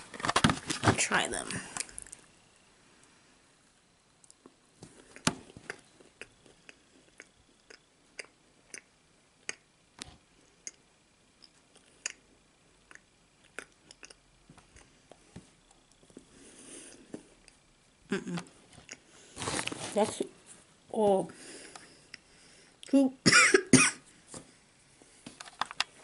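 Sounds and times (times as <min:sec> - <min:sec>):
mouth clicks and smacks: 0:04.2 - 0:09.7, 0:10.6 - 0:10.8, 0:11.4 - 0:12.2, 0:12.8 - 0:15.2
person chewing: 0:04.3 - 0:09.6, 0:12.8 - 0:15.2, 0:18.3 - 0:19.1.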